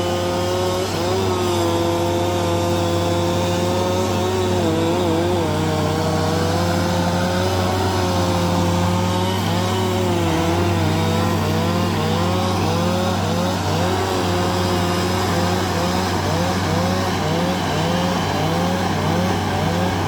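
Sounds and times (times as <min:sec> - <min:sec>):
bulldozer diesel engine: 0:00.0 - 0:20.0.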